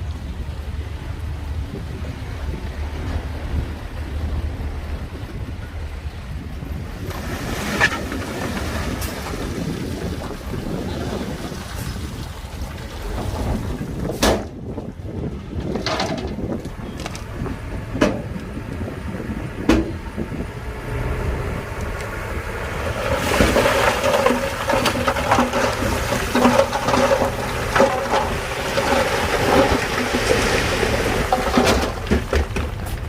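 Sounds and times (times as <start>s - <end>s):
bulldozer engine rumbling: 0.0s - 33.0s
grinding clatter: 15.6s - 18.8s, 22.0s - 33.0s.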